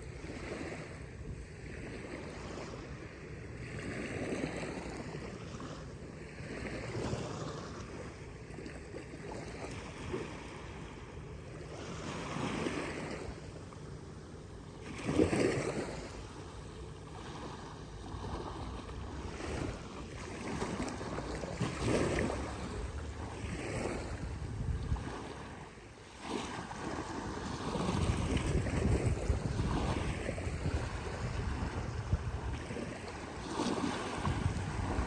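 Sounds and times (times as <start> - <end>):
small waves washing onto beach: 0.0 - 35.0
wind rumbling on microphone: 14.9 - 35.0.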